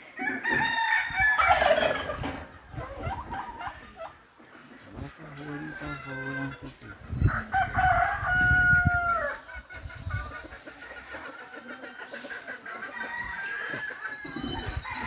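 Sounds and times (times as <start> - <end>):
chickens clucking: 0.0 - 15.0
rooster crowing: 7.3 - 9.4.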